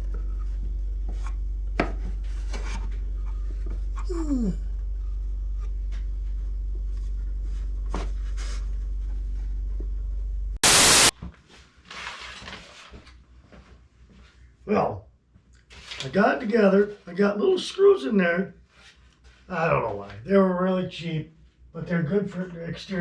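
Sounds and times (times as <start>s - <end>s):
loud burst of noise: 10.6s - 11.1s.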